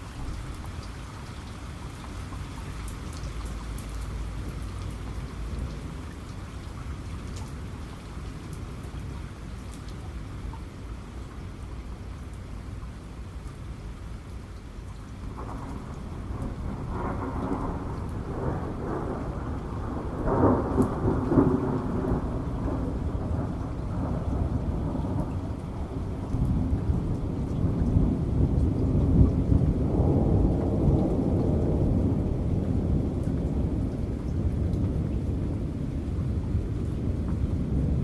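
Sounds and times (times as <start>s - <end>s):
steady rain: 0.0s - 38.0s
thunder rumbling: 15.3s - 38.0s.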